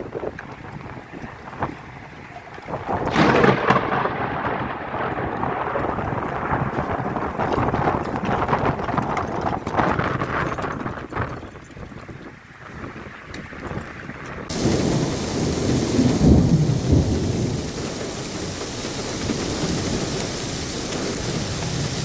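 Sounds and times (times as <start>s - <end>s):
wind buffeting microphone: 0.0s - 22.0s
heavy rain pouring: 2.8s - 8.6s, 14.5s - 22.0s.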